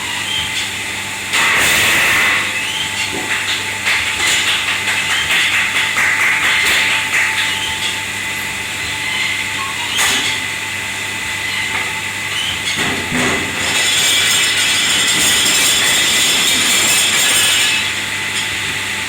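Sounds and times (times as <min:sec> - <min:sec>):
machine humming and hissing: 0:00.0 - 0:19.0
crockery and metal clattering: 0:03.0 - 0:08.0.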